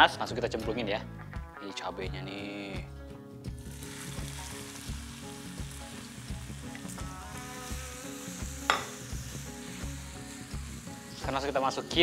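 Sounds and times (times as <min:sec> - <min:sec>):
food sizzling in hot oil: 0:03.5 - 0:12.0.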